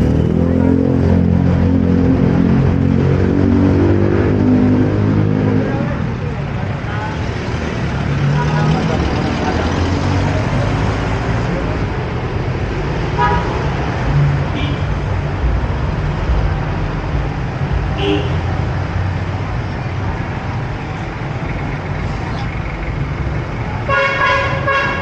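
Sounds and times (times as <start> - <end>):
traffic rumble: 0.0 - 25.0
loud car horn honk: 13.1 - 13.7, 14.5 - 15.0, 18.0 - 18.5, 23.9 - 25.0
horn toots: 17.9 - 18.5, 23.9 - 25.0.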